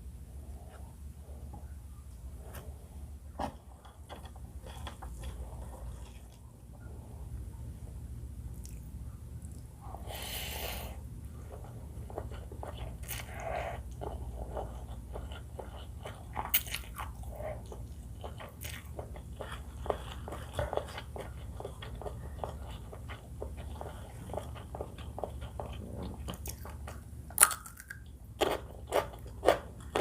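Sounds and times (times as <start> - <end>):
steady low hum: 0.0 - 30.0
person biting and chewing food: 8.5 - 10.9, 12.2 - 23.6, 24.4 - 30.0.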